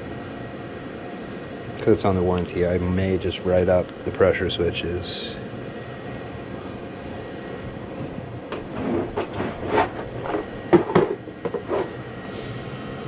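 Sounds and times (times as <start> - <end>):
gas furnace burner running: 0.0 - 13.0
knocks and clatter: 8.5 - 11.9.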